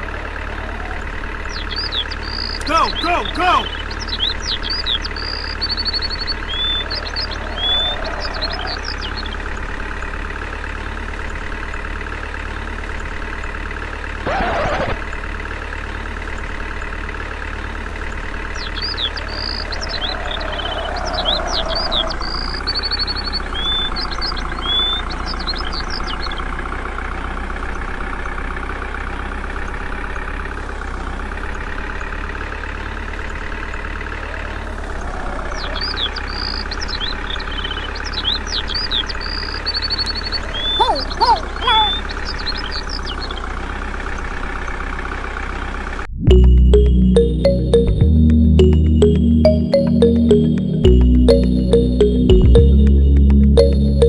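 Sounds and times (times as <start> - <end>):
birds chirping: 0.1 - 10.1, 18.0 - 26.6, 33.7 - 43.6.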